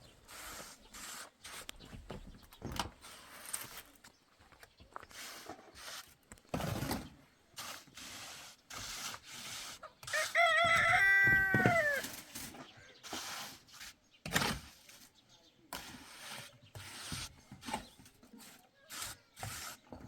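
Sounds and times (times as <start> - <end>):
rooster crowing: 10.1 - 12.1.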